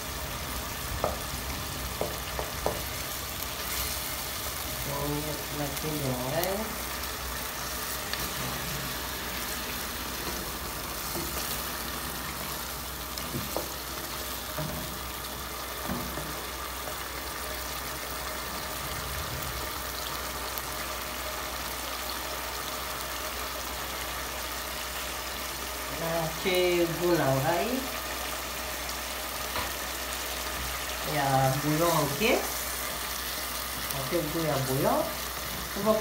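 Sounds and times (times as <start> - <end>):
vegetables sizzling in oil: 0.0 - 36.0
wooden spoon knocking pot: 1.9 - 2.9.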